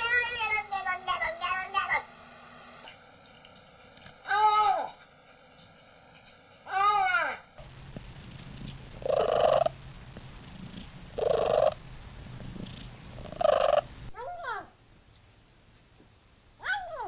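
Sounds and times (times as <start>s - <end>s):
cat purring: 8.5s - 9.8s, 10.4s - 14.0s.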